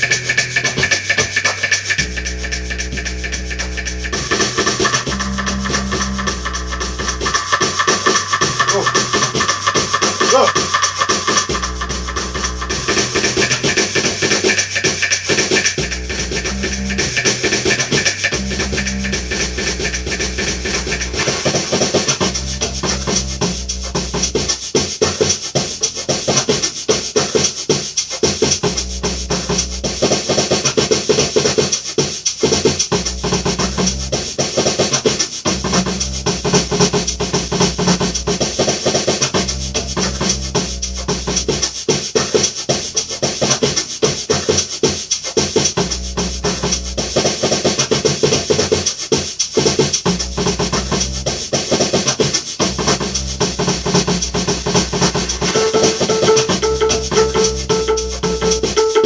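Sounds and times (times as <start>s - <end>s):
bass line: 0.0s - 24.5s, 28.6s - 30.0s, 32.9s - 34.4s, 35.5s - 41.7s, 45.8s - 47.2s, 50.1s - 51.5s, 52.6s - 59.0s
music with fast dense beat: 0.0s - 59.0s.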